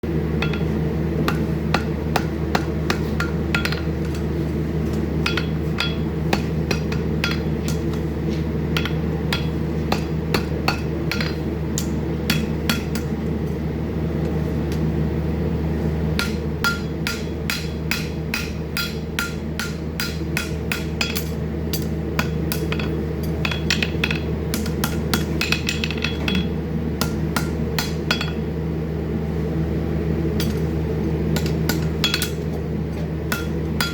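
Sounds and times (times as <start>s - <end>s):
hammer striking horseshoe: 0.4s - 4.2s, 4.9s - 8.1s, 8.8s - 13.1s, 16.2s - 28.4s, 31.4s - 32.5s, 33.3s - 33.9s.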